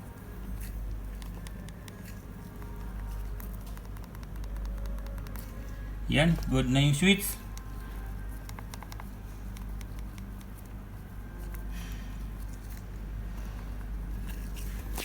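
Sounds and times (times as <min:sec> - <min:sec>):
low electrical hum: 0:00.0 - 0:15.0
small clicks and taps: 0:01.1 - 0:05.5, 0:08.4 - 0:10.7.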